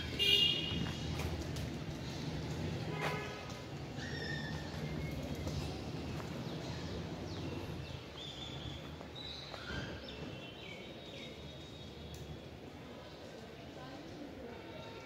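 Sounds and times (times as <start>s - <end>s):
town street noise: 0.0s - 15.0s.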